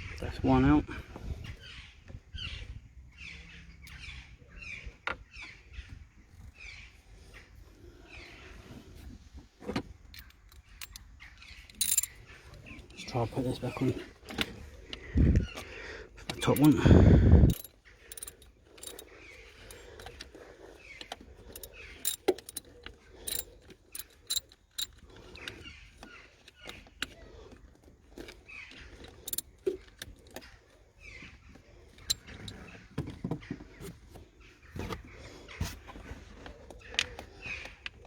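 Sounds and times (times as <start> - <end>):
metal tools clinking and scraping: 10.1 - 14.1, 16.4 - 16.9, 17.5 - 20.2, 21.4 - 25.6, 29.0 - 30.4.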